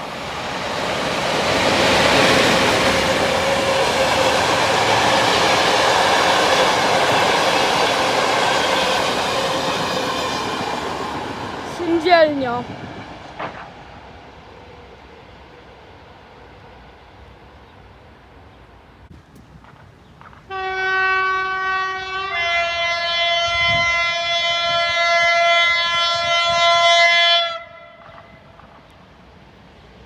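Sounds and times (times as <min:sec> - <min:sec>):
electric locomotive horn blast: 0:20.5 - 0:28.4.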